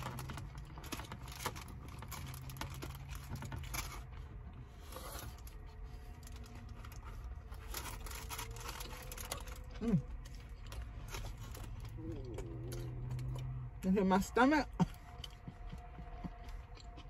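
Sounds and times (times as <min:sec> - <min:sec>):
chewing with mouth clicks: 0:06.2 - 0:13.8, 0:14.7 - 0:17.0.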